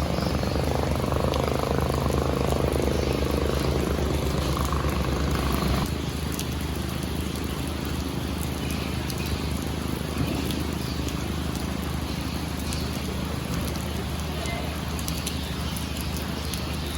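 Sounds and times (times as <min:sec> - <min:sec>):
pulsing engine throb: 0:00.0 - 0:05.9
rain hissing: 0:00.0 - 0:16.9.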